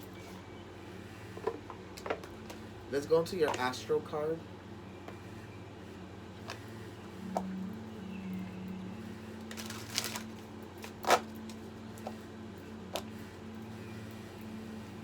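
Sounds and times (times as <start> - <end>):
low room hum: 0.0 - 15.0
cards riffling: 9.4 - 12.2.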